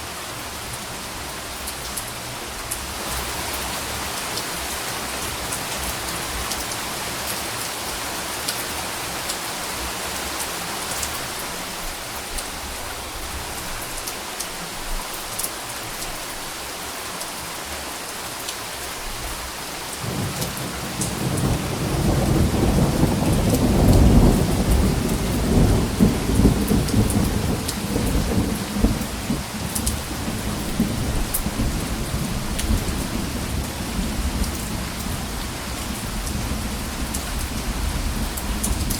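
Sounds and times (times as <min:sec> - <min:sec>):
steady rain hissing: 0:00.0 - 0:38.9
rumble of thunder: 0:20.0 - 0:35.2
rain drop ticks: 0:28.9 - 0:30.1.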